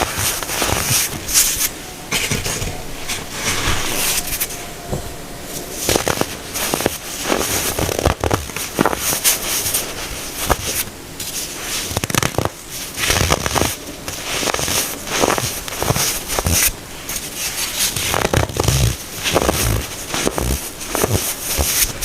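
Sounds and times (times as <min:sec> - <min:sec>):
baking soda crunching by hand: 0:05.8 - 0:22.0.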